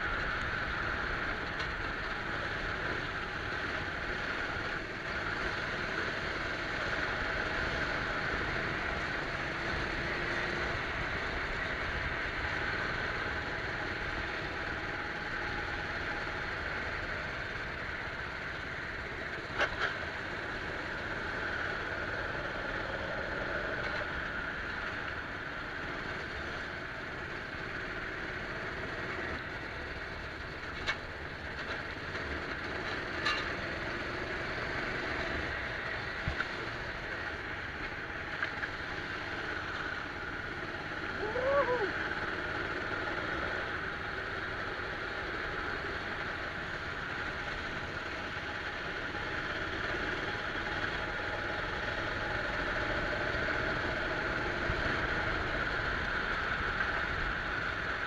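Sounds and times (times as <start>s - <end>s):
go-kart engine running: 0.0s - 58.0s.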